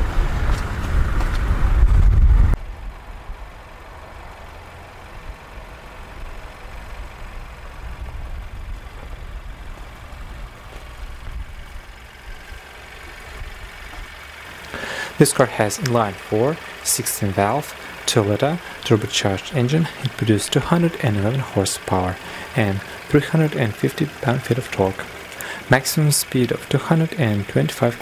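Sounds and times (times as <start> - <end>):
low rumble: 0.0 - 14.7
car engine idling: 0.0 - 28.0.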